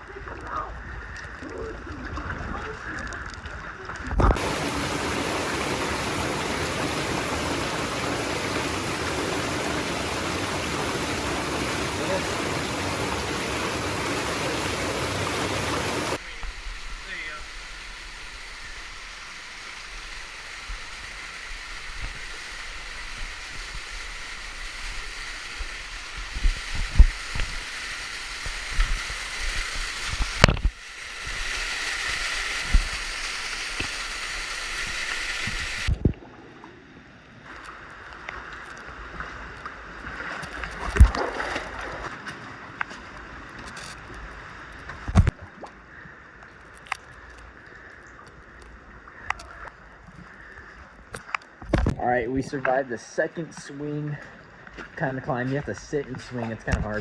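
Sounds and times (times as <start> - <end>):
creek water rushing: 4.2 - 36.0, 37.4 - 42.7.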